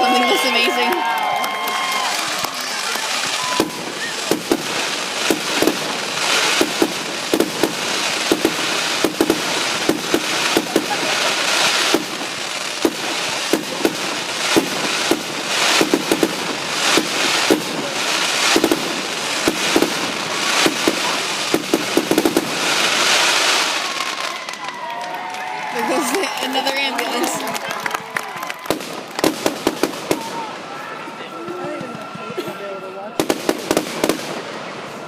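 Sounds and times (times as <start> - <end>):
fireworks bangs: 0.0 - 35.0
fireworks crackling: 0.0 - 35.0.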